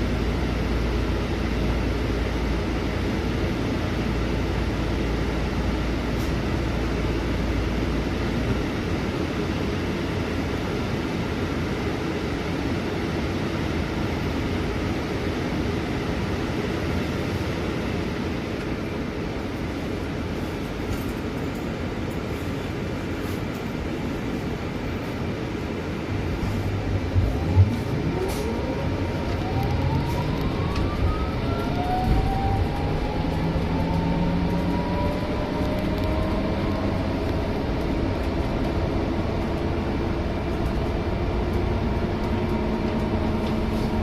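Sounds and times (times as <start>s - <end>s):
bus engine and road noise: 0.0s - 44.0s
deep low rumble: 26.1s - 44.0s.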